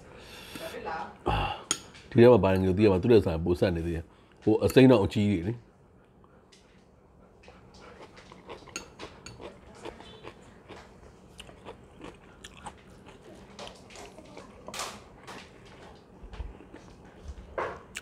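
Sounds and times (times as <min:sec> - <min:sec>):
chewing crisp cucumber: 0:07.4 - 0:18.0.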